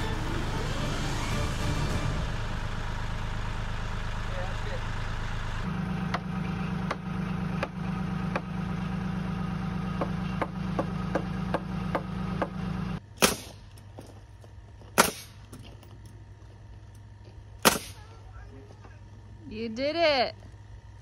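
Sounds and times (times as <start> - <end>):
tractor engine running: 0.0 - 21.0
loud sharp knocks: 10.0 - 12.6.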